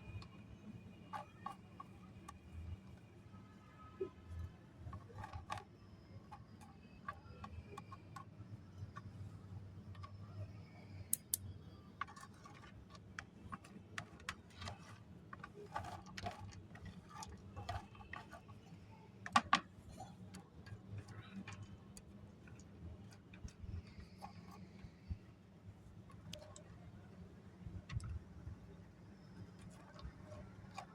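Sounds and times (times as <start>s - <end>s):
snack pieces clicking and tapping: 11.1s - 14.8s.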